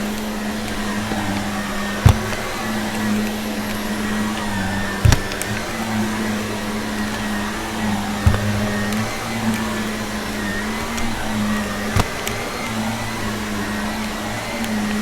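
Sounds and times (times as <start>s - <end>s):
vacuum cleaner running: 0.0s - 15.0s
sharp thumps: 1.9s - 2.7s, 4.9s - 5.8s, 8.2s - 9.1s.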